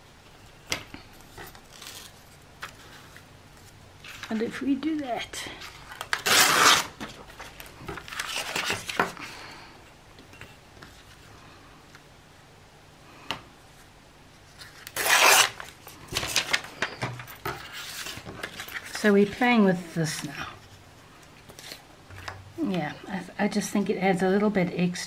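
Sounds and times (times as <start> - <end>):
paper rustling: 5.7 - 9.3, 14.4 - 19.4.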